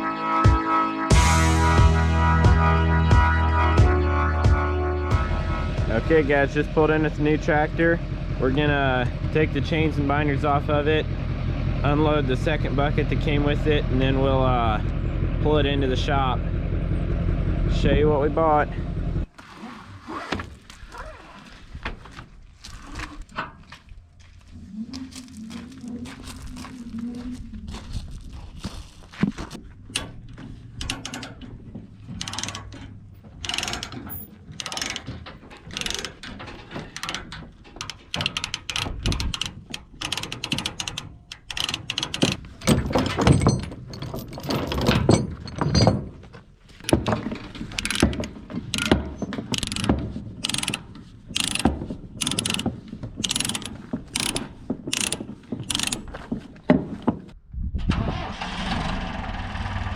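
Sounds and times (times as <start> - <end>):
ratchet binder clicking: 29.8 - 31.5, 32.1 - 43.6, 46.8 - 56.2
chains clanking: 29.9 - 56.1.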